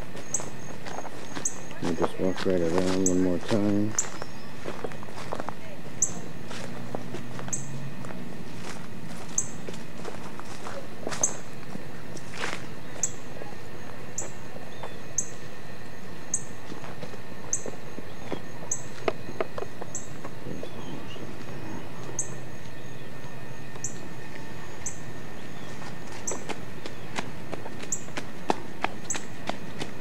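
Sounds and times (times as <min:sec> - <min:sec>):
bird chirping: 0:00.2 - 0:04.8, 0:06.0 - 0:06.4, 0:07.4 - 0:07.8, 0:09.3 - 0:09.6, 0:12.8 - 0:13.3, 0:17.5 - 0:27.2.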